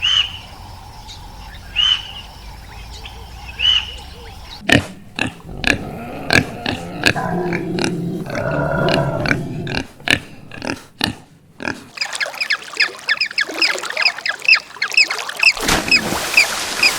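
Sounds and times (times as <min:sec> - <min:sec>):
pigs grunting and oinking: 0:04.6 - 0:12.0.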